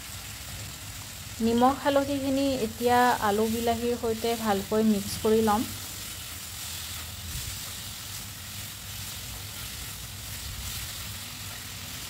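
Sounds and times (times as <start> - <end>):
vegetables sizzling in hot oil: 0.0 - 12.0
spatula stirring: 5.8 - 12.0.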